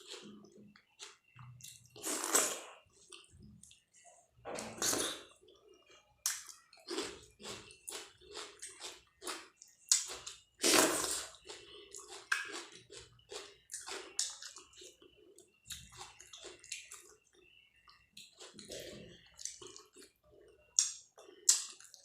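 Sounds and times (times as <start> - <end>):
wet chewing sounds: 4.8 - 22.0.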